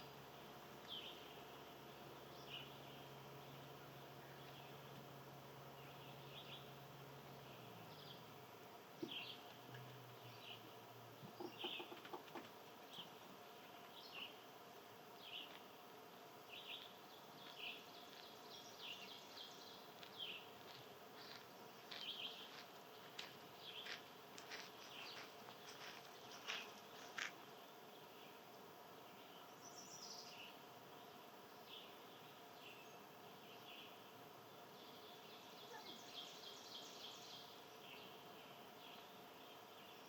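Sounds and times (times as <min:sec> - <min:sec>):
faint hum: 0:00.0 - 0:40.0
small bird chirping: 0:10.2 - 0:14.4, 0:34.8 - 0:40.0.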